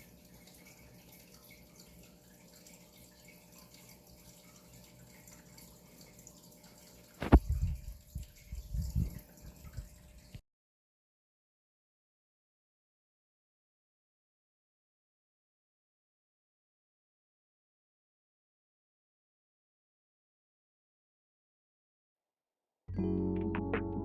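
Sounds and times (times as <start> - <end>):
aquarium water trickling and dripping: 0.0 - 10.4.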